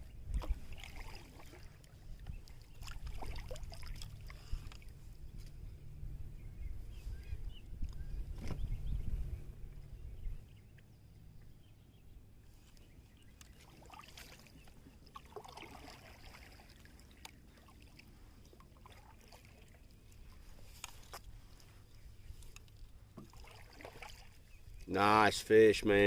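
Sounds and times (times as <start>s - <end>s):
wind rumble on microphone: 0.0s - 1.3s, 2.0s - 11.8s
water lapping against kayak hull: 0.0s - 5.8s, 12.5s - 25.4s.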